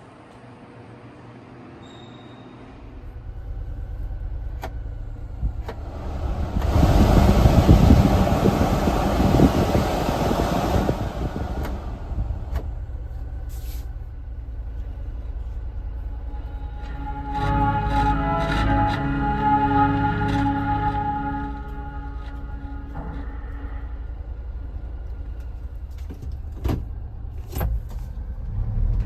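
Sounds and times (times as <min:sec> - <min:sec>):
truck engine humming: 0:02.8 - 0:28.7
loud rushing noise: 0:05.4 - 0:13.0.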